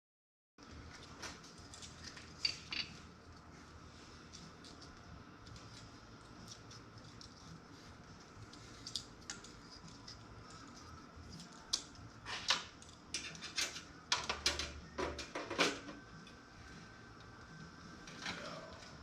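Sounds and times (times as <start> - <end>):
computer parts clicking and scraping: 12.4 - 14.6.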